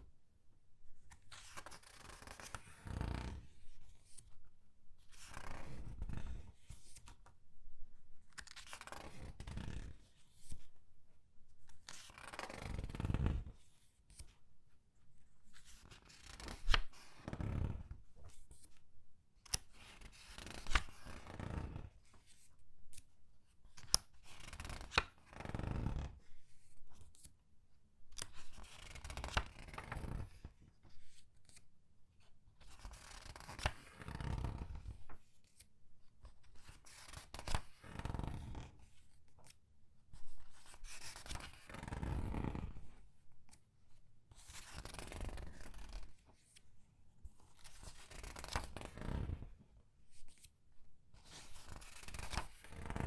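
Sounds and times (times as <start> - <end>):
pages turning with crinkling: 19.5 - 21.3, 23.8 - 25.1, 44.4 - 46.6, 47.5 - 49.4, 51.2 - 53.0.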